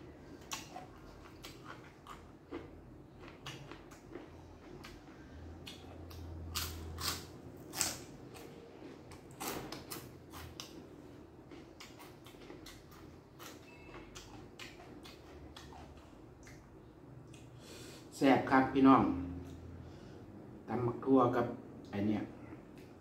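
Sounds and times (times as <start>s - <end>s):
crunching and chewing: 0.3s - 16.6s.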